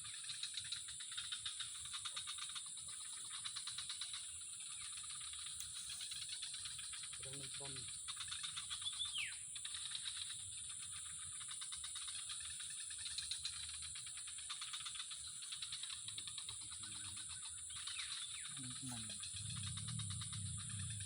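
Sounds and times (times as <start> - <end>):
rapid pulsing trill: 17.8 - 21.0.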